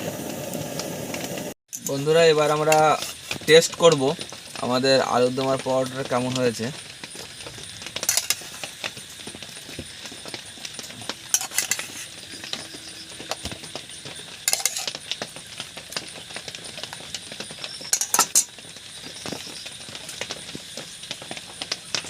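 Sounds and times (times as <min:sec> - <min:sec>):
utensils clinking against plates: 0:08.0 - 0:08.7, 0:10.9 - 0:13.6, 0:14.4 - 0:15.0, 0:17.9 - 0:18.5.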